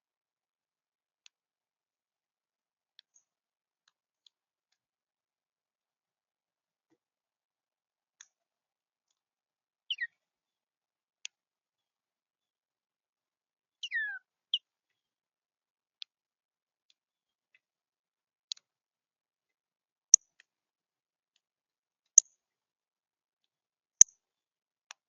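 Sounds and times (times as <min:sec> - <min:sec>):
songbird high downward call: 0:09.9 - 0:10.2, 0:13.8 - 0:14.6.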